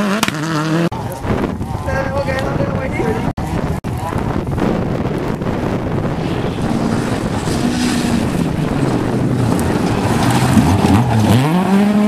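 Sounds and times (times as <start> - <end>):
rally car engine revving: 0.0 - 1.0, 4.5 - 12.0
wind gusting on microphone: 0.9 - 12.0.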